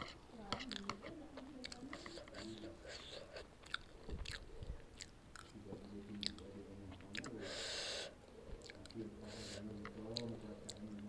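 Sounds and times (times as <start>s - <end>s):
wet mouth clicks: 0.0s - 5.6s, 6.2s - 7.4s, 8.6s - 9.0s, 9.8s - 11.0s
chewing noodles: 0.0s - 11.0s.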